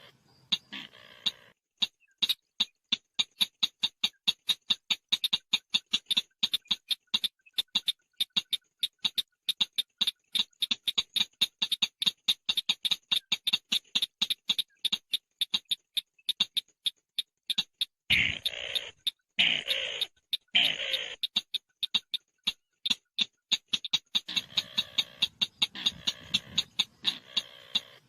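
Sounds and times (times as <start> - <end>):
harsh raspy bird call: 0.0 - 1.6, 18.1 - 21.4, 24.3 - 28.0
bird chipping: 0.0 - 28.0.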